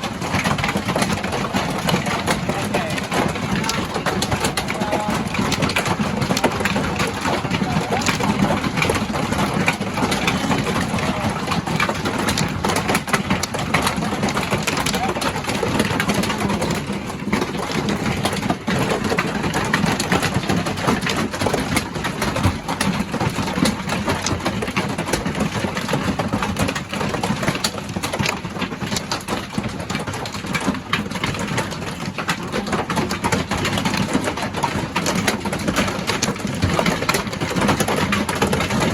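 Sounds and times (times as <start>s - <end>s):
hail on a caravan roof: 0.0s - 38.9s.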